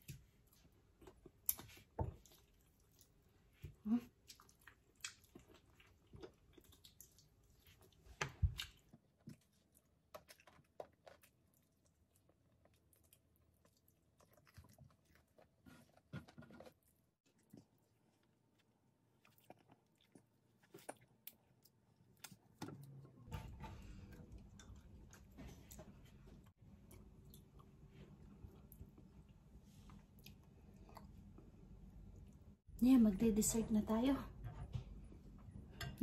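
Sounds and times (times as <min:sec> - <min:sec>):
chewing and mouth smacking: 0:04.1 - 0:22.6.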